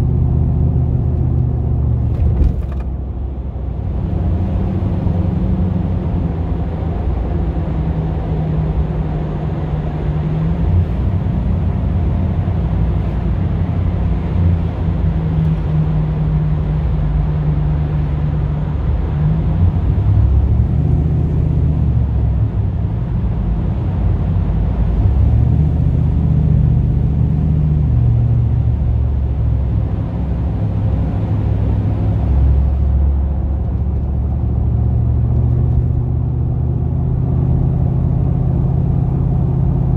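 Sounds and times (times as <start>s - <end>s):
van engine droning while driving: 0.0s - 39.9s.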